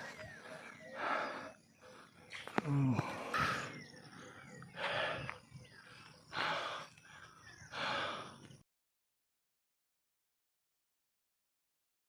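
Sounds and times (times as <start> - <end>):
person breathing hard: 0.0 - 8.6.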